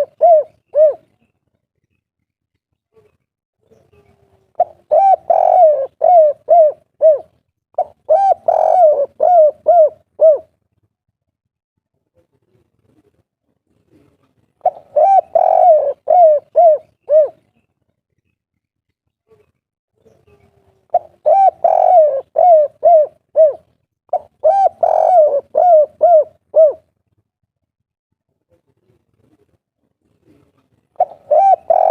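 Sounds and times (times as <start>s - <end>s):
dove cooing: 0.0s - 1.2s, 3.9s - 10.5s, 14.0s - 17.6s, 20.3s - 26.9s, 30.2s - 31.9s.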